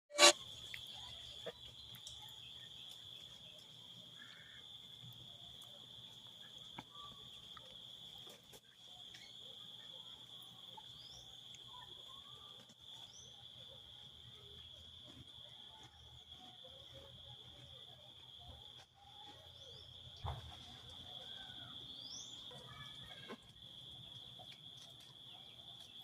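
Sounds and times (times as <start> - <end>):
short bird chirps: 0.1 - 0.4.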